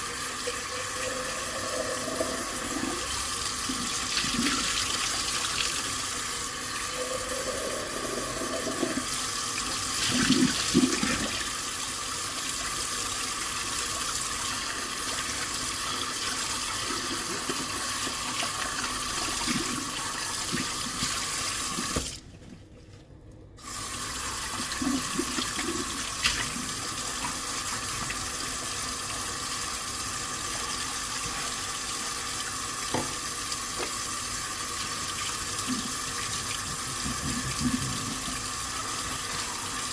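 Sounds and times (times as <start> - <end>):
tap water running into sink: 0.0 - 22.2, 23.6 - 39.9.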